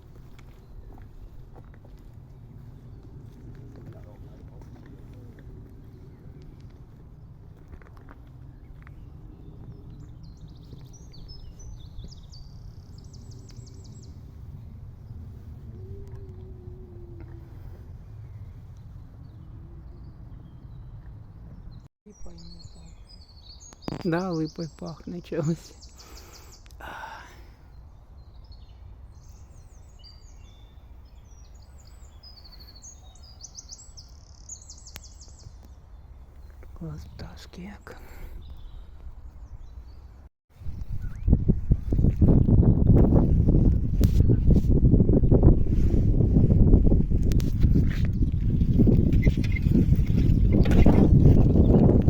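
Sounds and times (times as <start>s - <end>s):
steady low rumble: 0.0s - 23.0s
songbirds chirping and trilling: 0.1s - 45.9s, 47.3s - 52.0s
songbird singing with trill: 19.2s - 26.8s, 27.7s - 37.8s, 38.4s - 41.4s.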